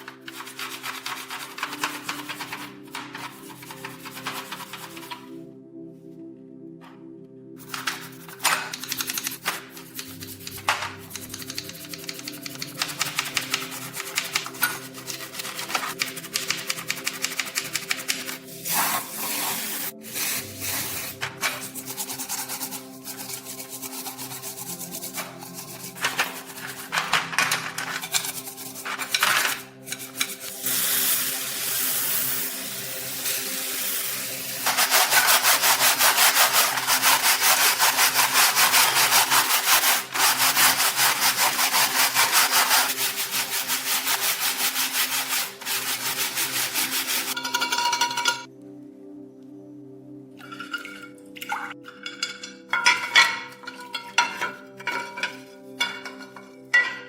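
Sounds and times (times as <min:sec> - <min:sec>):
hand sanding back and forth: 0:00.0 - 0:05.3, 0:07.6 - 0:27.2, 0:32.6 - 0:47.4.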